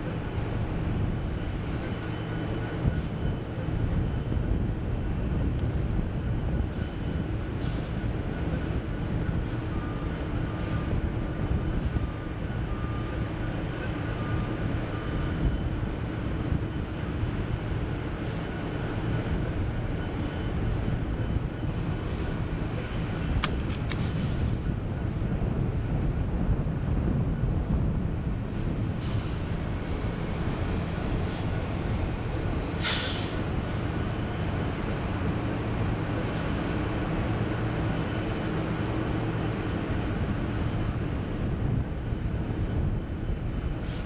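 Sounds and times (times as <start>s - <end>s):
heavy engines idling: 0.0s - 44.0s.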